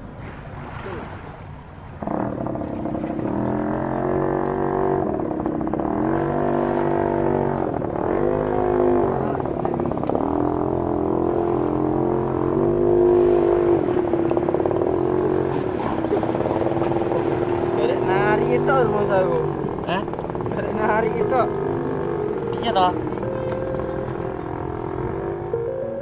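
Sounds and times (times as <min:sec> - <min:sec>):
small boat engine running: 0:00.6 - 0:26.0.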